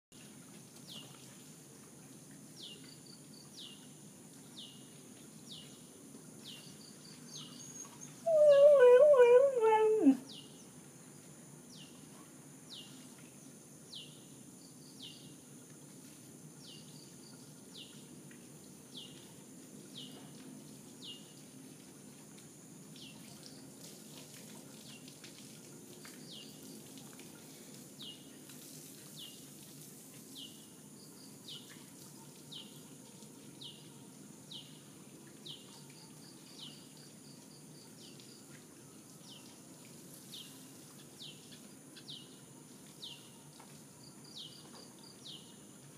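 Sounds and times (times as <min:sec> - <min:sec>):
bird calling: 0:07.8 - 0:10.2.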